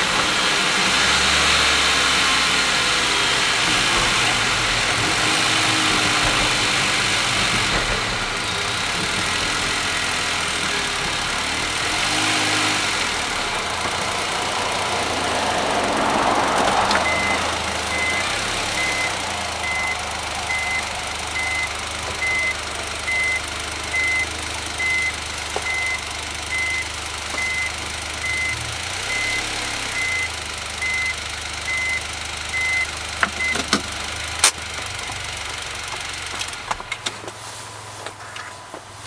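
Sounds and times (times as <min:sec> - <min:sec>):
vehicle engine idling: 0:00.0 - 0:39.0
reversing warning beeper: 0:17.0 - 0:33.7.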